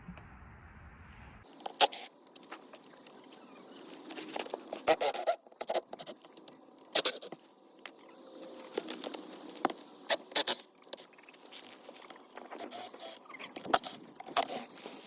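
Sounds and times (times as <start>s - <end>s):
scratchy rustling and scraping: 1.5s - 6.3s, 11.3s - 15.0s.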